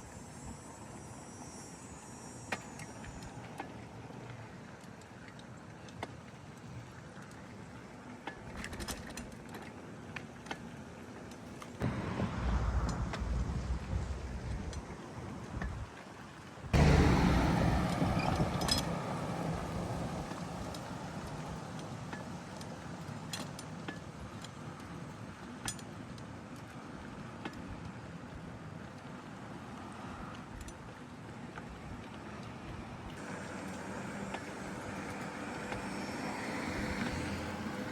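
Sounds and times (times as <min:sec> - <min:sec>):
bicycle tyre road noise: 0:00.1 - 0:25.7, 0:26.3 - 0:37.9
bike clicks and rattles: 0:08.2 - 0:10.7, 0:17.9 - 0:26.6.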